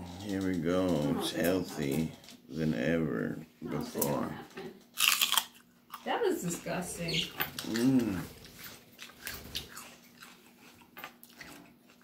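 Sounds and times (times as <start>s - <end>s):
celery being chewed: 5.0s - 6.1s, 7.5s - 12.0s
person humming: 7.6s - 8.4s.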